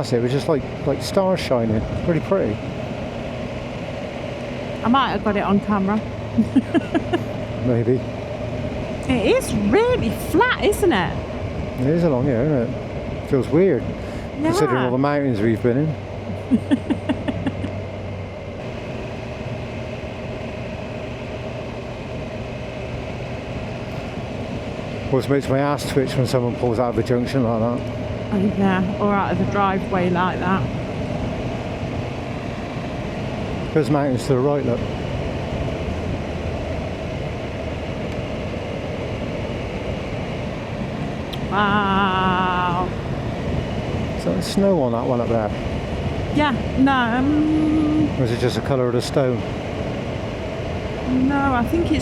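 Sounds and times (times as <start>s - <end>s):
motorcycle engine drone: 0.0s - 52.0s
wind and road noise: 0.0s - 52.0s.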